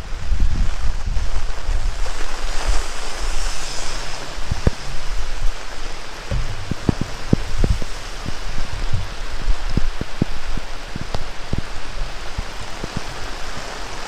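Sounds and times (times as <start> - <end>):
heavy rain pouring: 0.0 - 14.0
wind buffeting microphone: 0.0 - 14.0.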